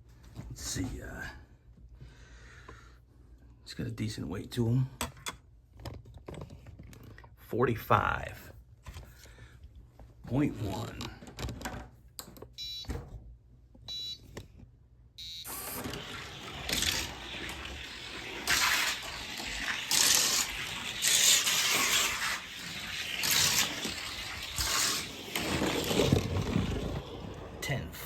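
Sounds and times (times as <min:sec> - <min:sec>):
electronic countdown beeps: 0:13.9 - 0:14.2, 0:15.2 - 0:15.5
toy car rolling on plastic track: 0:15.5 - 0:28.0.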